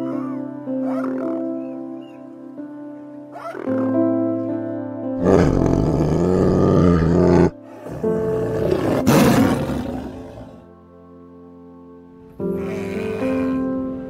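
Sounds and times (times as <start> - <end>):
soft piano music: 0.0 - 14.0
tiger roaring: 5.2 - 10.7, 12.5 - 14.0.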